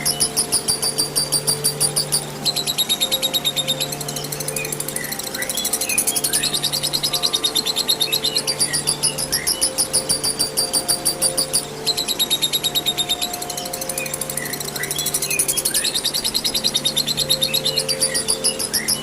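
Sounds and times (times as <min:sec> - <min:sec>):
lovebird chattering trill: 0:00.0 - 0:19.0.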